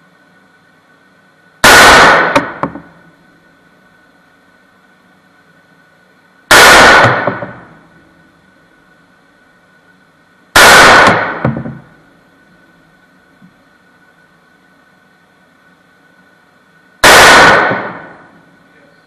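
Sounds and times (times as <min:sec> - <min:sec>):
gunshots: 0:01.6 - 0:02.9, 0:06.5 - 0:07.7, 0:10.6 - 0:11.9, 0:17.0 - 0:18.3.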